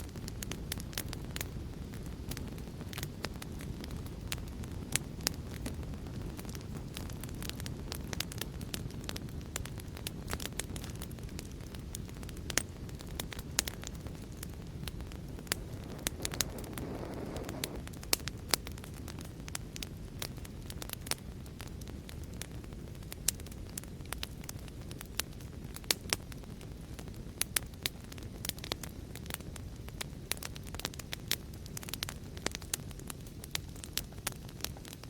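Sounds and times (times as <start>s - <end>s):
fire popping and snapping: 0.0s - 35.0s
wood fire crackling: 0.0s - 35.0s
gusty flame whoosh: 12.1s - 19.3s.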